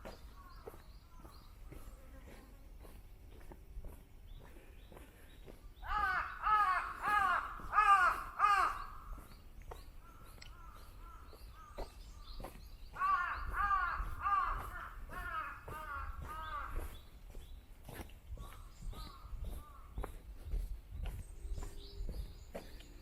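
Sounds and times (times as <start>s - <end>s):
faint bird calls: 0.0s - 23.0s
crow cawing: 5.8s - 9.3s, 10.0s - 11.8s, 13.0s - 16.9s, 18.4s - 20.0s.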